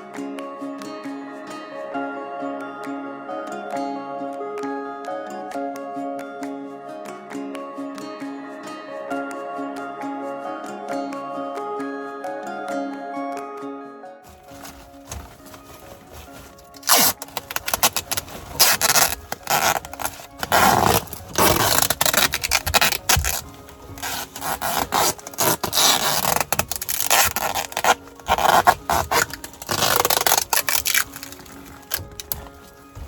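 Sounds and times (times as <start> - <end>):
background music: 0.0 - 33.0
rubbing and scraping on duct: 14.3 - 33.0.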